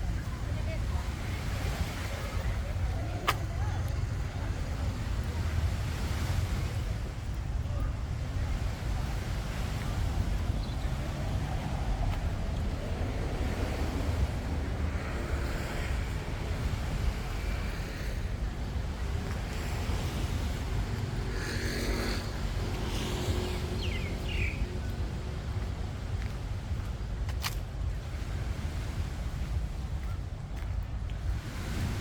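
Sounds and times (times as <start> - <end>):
roadside traffic: 0.0 - 32.0
wind rumble on microphone: 0.0 - 32.0
vehicle passing: 10.8 - 25.2.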